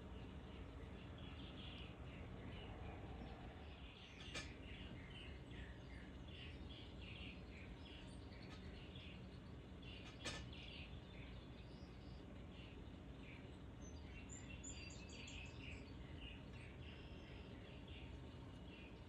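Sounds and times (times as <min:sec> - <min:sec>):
low background rumble: 0:00.0 - 0:19.0
songbird chirps and twittering: 0:00.0 - 0:19.0.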